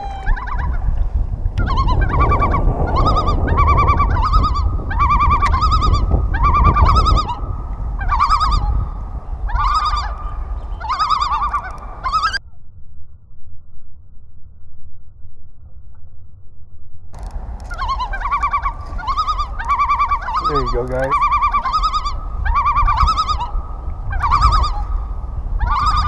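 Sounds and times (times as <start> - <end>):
bird warbling calls: 0.0 - 0.9, 1.6 - 12.4, 17.2 - 26.0
wind rumble on microphone: 0.0 - 26.0.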